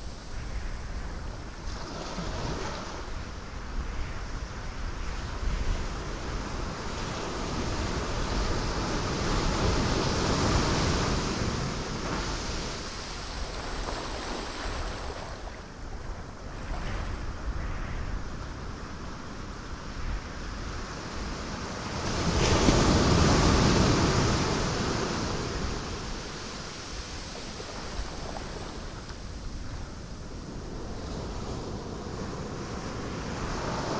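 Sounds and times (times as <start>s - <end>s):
ocean waves breaking on rocks: 5.4s - 17.6s, 20.4s - 33.9s.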